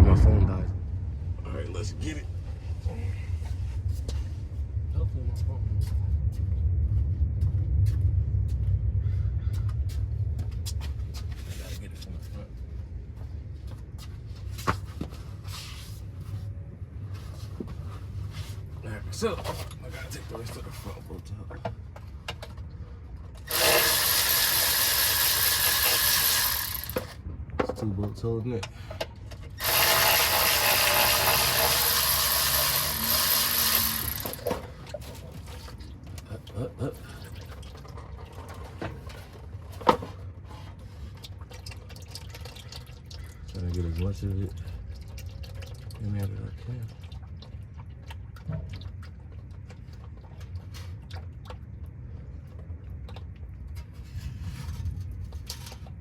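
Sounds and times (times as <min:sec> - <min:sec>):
power ratchet running: 0:23.4 - 0:27.2, 0:29.6 - 0:34.6
fluid trickling and dripping: 0:34.7 - 0:39.6, 0:40.3 - 0:53.8.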